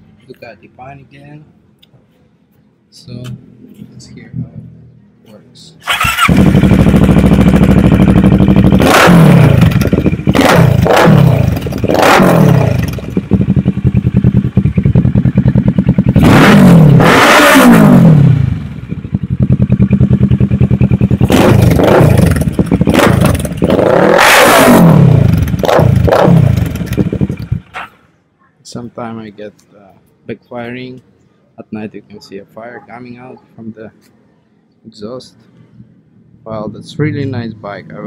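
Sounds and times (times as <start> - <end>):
motorcycle engine revving: 5.8 - 27.8.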